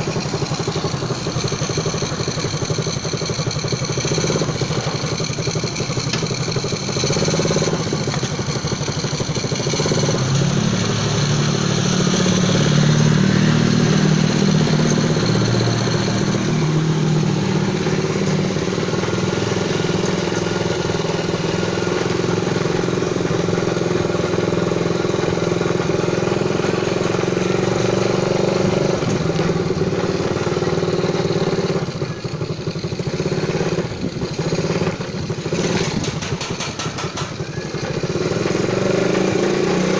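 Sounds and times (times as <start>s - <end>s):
minibike engine running: 0.0s - 39.9s.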